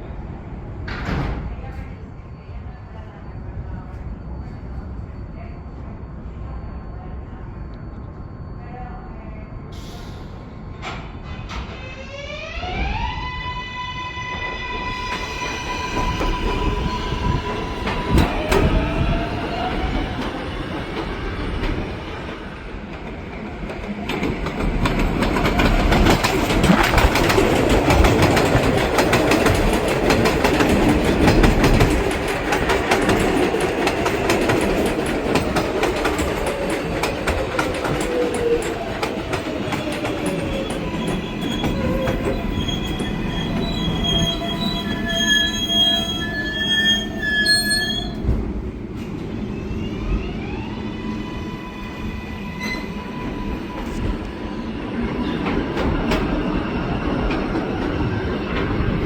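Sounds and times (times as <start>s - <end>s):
train wheel clatter on rails: 17.4s - 45.3s, 54.9s - 59.0s
high wheel squeal: 39.8s - 48.2s.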